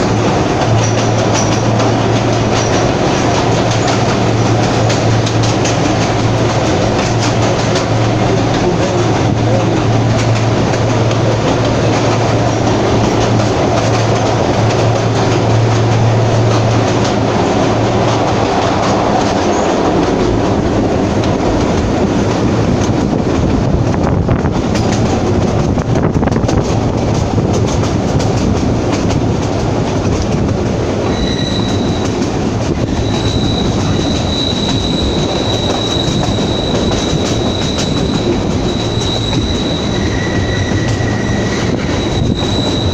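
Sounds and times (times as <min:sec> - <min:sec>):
train wheels rumbling: 0:00.0 - 0:42.9
high-pitched wheel squeal: 0:31.1 - 0:32.2, 0:32.9 - 0:42.9.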